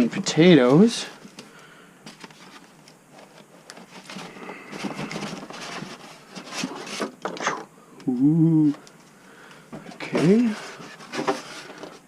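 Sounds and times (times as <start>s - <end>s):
packaging rustling and scraping: 0.5s - 7.6s, 9.8s - 12.0s.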